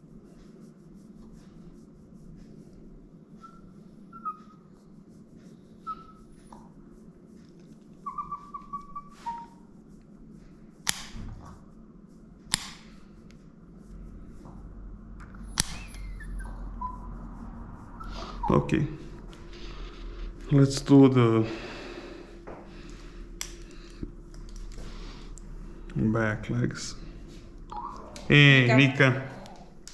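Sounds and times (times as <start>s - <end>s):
dog whimpering and whining: 3.4s - 4.7s, 5.8s - 6.8s, 8.0s - 9.6s, 15.4s - 17.2s, 18.0s - 18.7s
nail clipper clicks: 10.9s - 11.2s, 12.5s - 12.9s, 15.6s - 15.9s.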